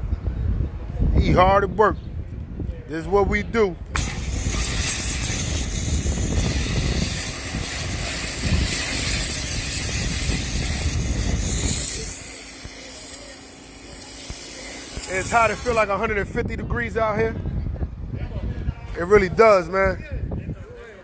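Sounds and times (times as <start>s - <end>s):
water spraying onto car: 4.0s - 15.8s.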